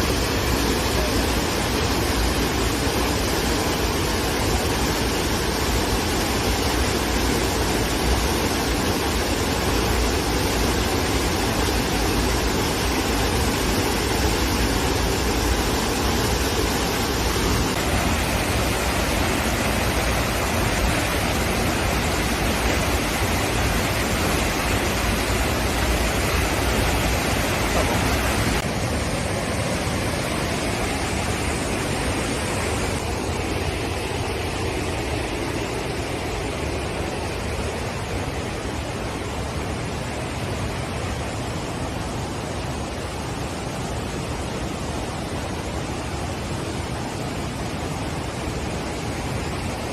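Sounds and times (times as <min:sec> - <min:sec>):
waterfall roaring: 0:00.0 - 0:49.9.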